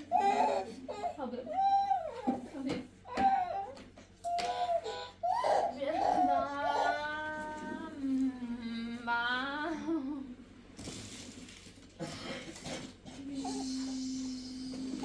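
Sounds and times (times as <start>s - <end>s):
person humming: 13.1s - 15.0s.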